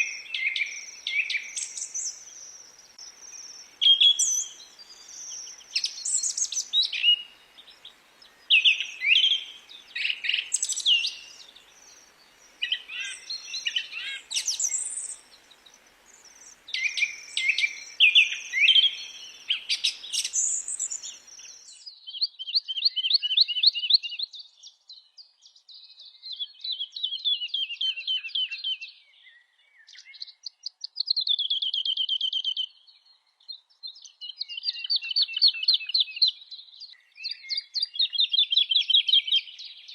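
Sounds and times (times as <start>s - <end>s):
background hiss: 0.0s - 21.8s
songbirds singing: 0.0s - 39.9s.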